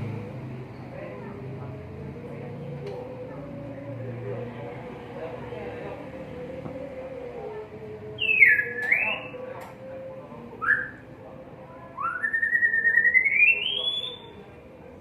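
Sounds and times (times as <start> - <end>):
bird whistling: 8.2 - 9.4, 10.6 - 11.0, 12.0 - 14.4.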